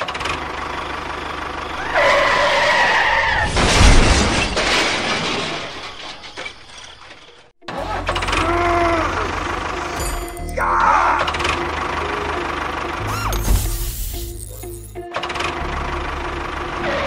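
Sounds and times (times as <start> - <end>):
loud rush of noise with thud: 3.4 - 5.8
low rhythmic engine rumble: 7.6 - 17.0.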